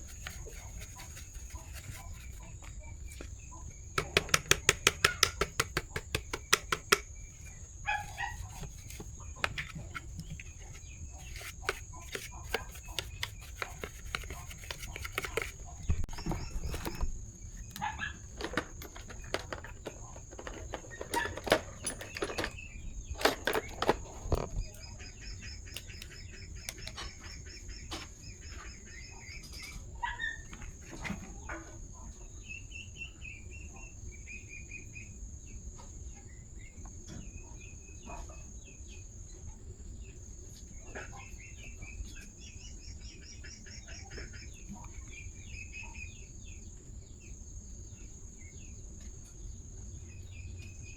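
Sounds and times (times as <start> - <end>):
birds chirping: 0.0 - 30.6
knocks and clicks: 4.0 - 7.6.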